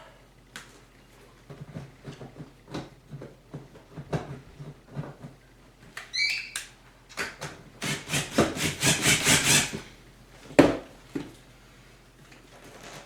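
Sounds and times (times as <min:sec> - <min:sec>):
short high squeak: 0:06.1 - 0:06.6.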